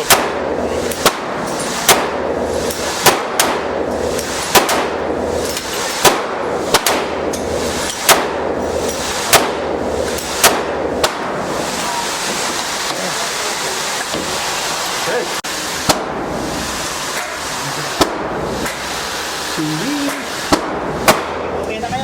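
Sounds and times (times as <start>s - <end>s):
gunshots: 0.0s - 7.3s, 8.0s - 11.6s, 20.2s - 21.6s
steady background hum: 0.0s - 22.0s.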